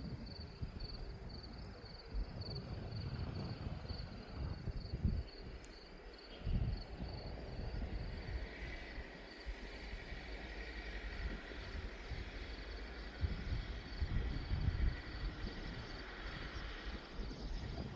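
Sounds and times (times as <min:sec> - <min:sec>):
crickets chirping: 0:00.0 - 0:17.9
wind buffeting microphone: 0:00.0 - 0:17.9.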